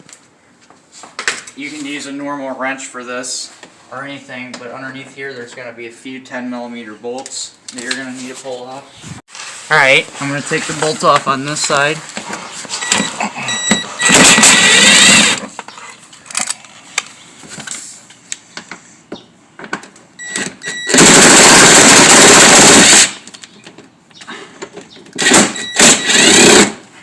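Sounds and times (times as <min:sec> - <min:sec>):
power driver spinning out bolts: 0:13.9 - 0:15.6.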